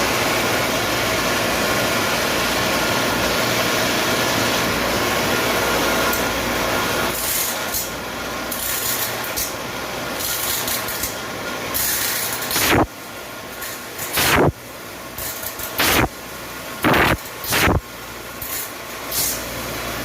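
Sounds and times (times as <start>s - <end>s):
machine humming: 12.3s - 13.4s, 14.1s - 14.7s, 15.6s - 17.9s.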